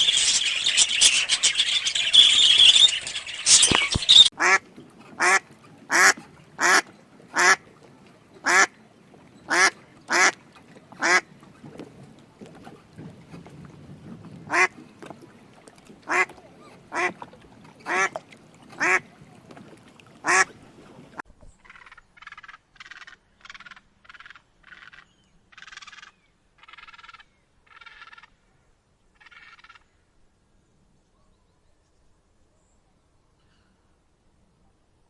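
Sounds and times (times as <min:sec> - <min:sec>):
ducks quacking: 0:00.0 - 0:08.8, 0:09.4 - 0:11.4, 0:14.4 - 0:14.8, 0:15.9 - 0:19.3, 0:20.2 - 0:20.6.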